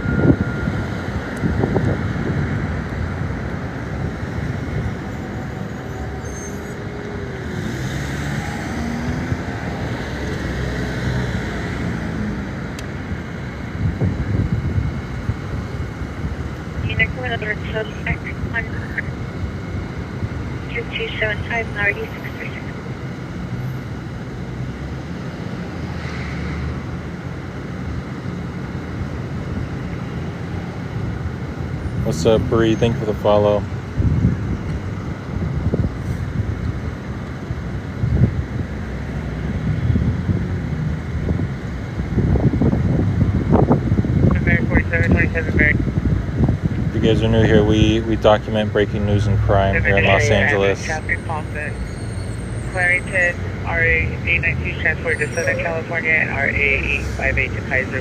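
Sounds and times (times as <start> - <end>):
wind on microphone: 0.0 - 5.1, 13.6 - 17.1, 33.9 - 36.8, 39.5 - 47.6
cars driving past: 0.0 - 58.0
vehicle rumble: 0.0 - 58.0.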